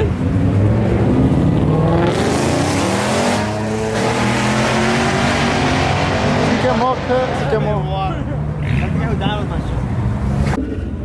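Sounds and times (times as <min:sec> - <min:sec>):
car engine revving hard: 0:00.3 - 0:07.7.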